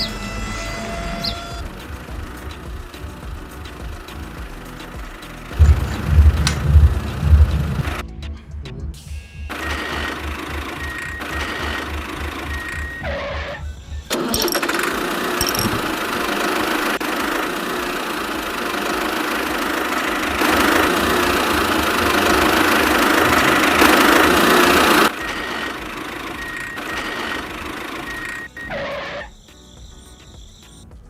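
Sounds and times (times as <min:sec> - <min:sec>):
small electric motor running: 0:09.5 - 0:13.4, 0:14.3 - 0:29.1.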